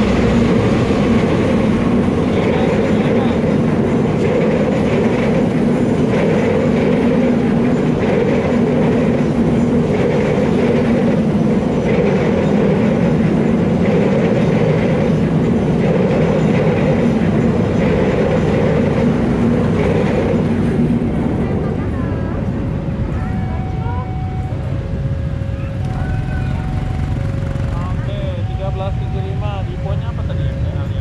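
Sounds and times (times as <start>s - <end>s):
wheels clacking over rail joints: 0.0s - 23.2s
train rumbling past: 0.0s - 31.0s.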